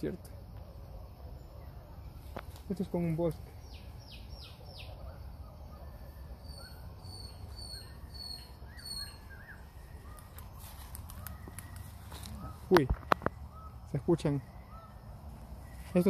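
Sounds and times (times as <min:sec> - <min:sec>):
birds chirping and whistling: 0:03.4 - 0:16.0.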